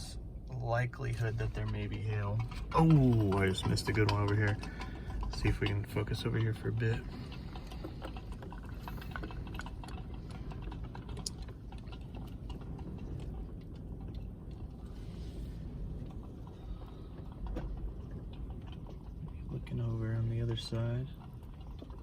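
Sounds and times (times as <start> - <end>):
wind rumbling around a car: 0.0 - 22.0.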